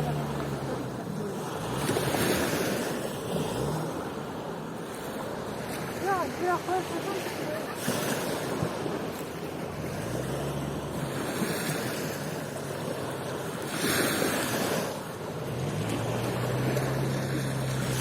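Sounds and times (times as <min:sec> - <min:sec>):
sea waves washing on beach: 0:00.0 - 0:18.0.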